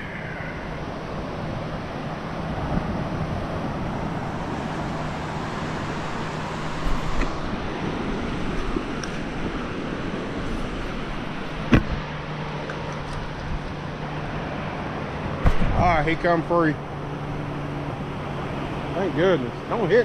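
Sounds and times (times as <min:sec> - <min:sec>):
wind on microphone: 0:00.0 - 0:13.9
low hum: 0:00.0 - 0:19.9.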